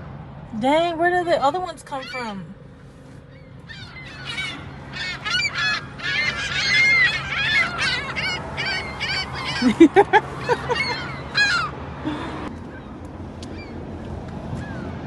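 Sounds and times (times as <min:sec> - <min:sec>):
seagulls squawking: 0:01.9 - 0:02.4, 0:03.2 - 0:12.9, 0:13.5 - 0:13.8.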